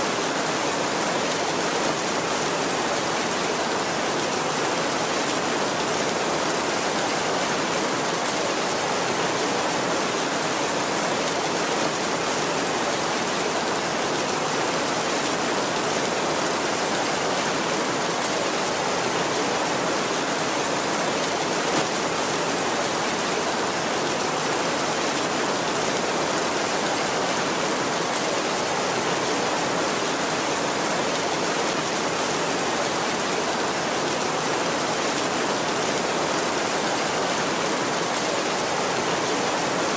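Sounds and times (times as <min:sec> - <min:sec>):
heavy rain on a tin roof: 0:00.0 - 0:39.9.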